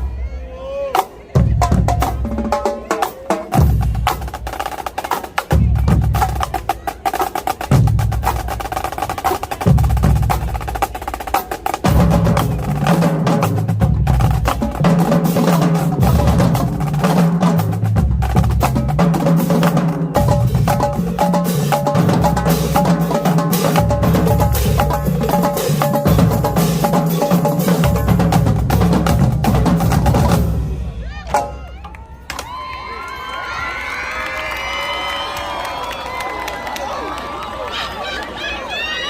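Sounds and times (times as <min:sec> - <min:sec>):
snare drum strokes and rolls: 0:01.5 - 0:32.6.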